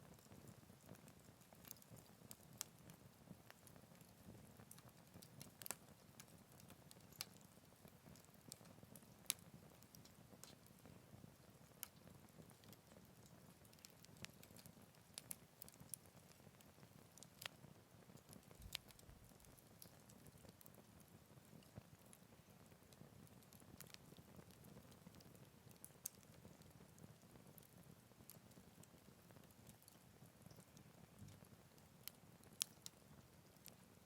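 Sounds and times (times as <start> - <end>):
campfire crackling: 0.0 - 34.0.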